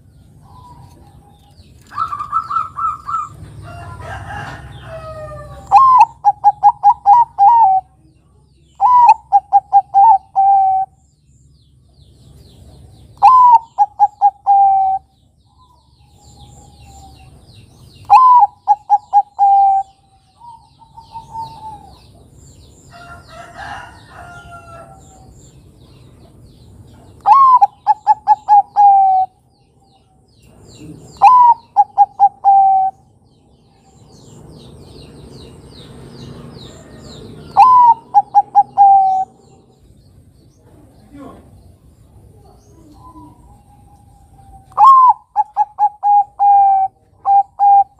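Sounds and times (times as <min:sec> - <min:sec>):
dove cooing: 0:01.9 - 0:03.5, 0:04.3 - 0:08.0, 0:08.8 - 0:11.0, 0:13.2 - 0:15.1, 0:18.0 - 0:22.2, 0:27.2 - 0:29.4, 0:30.8 - 0:33.1, 0:36.8 - 0:39.7, 0:42.3 - 0:47.9
faint bird chirps: 0:36.7 - 0:47.9.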